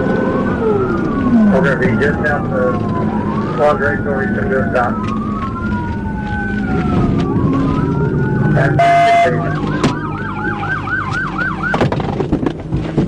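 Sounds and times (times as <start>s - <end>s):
police siren wailing and yelping: 0.0s - 12.0s
engine and road noise: 0.0s - 13.0s.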